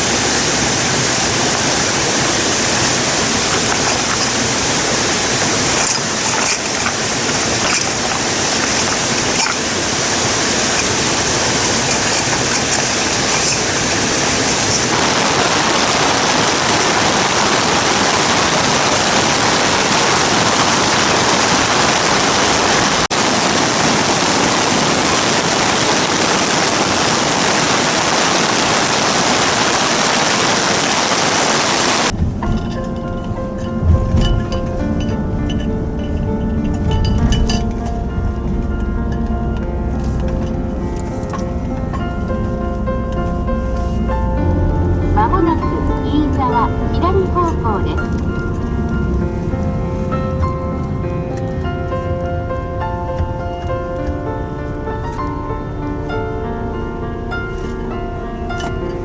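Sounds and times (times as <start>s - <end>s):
water rushing: 0.0s - 32.5s, 33.6s - 59.0s.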